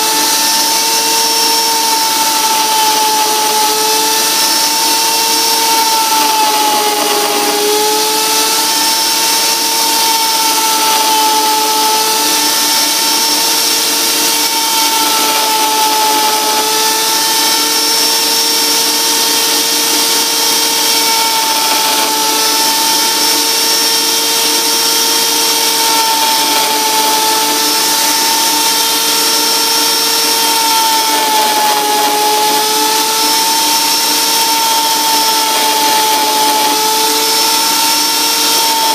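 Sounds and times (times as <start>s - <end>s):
lathe motor whining: 0.0s - 38.9s.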